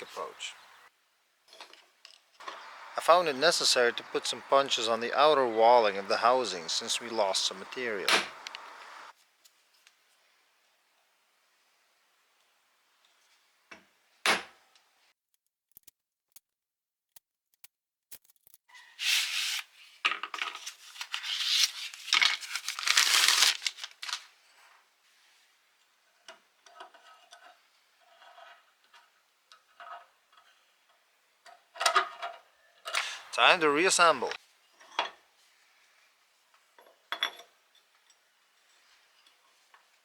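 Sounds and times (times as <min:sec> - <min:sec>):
rustling: 0:20.5 - 0:24.3.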